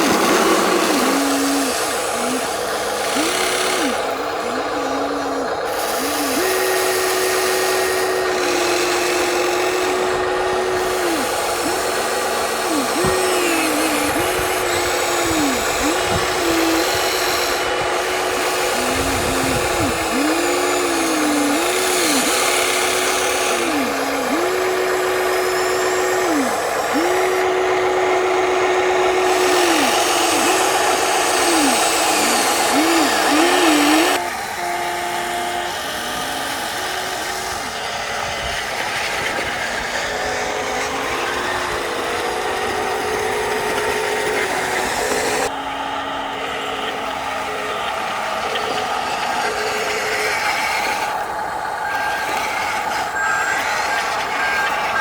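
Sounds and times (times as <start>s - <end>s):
electric motors whining: 0.0s - 55.0s.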